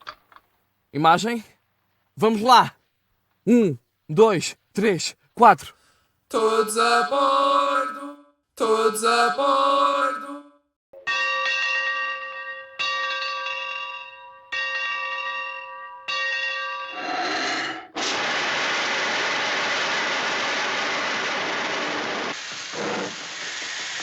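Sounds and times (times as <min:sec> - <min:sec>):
locomotive bell ringing: 0:11.0 - 0:17.0
escaping steam hiss: 0:17.0 - 0:24.0.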